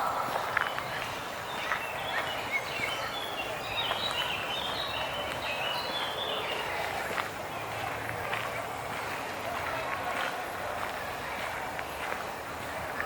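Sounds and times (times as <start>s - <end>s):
bird chirping: 0.0s - 6.7s
steady background hiss: 0.0s - 13.0s.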